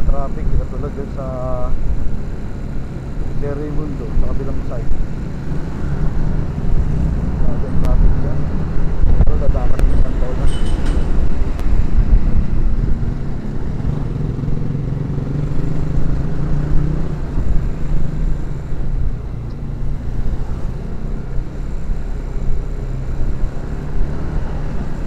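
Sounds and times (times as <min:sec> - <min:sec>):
wind and road noise: 0:00.0 - 0:25.0
motorcycle engine running: 0:00.1 - 0:24.0.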